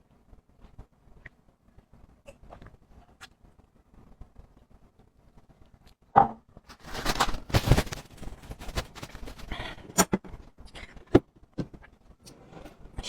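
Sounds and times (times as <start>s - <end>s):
breathy rustling: 6.7s - 10.0s.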